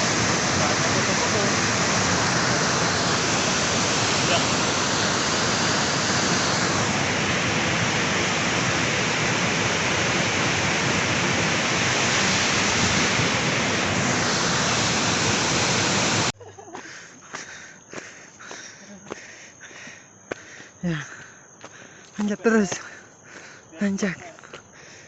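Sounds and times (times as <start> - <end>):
waterfall roaring: 0.0 - 16.3.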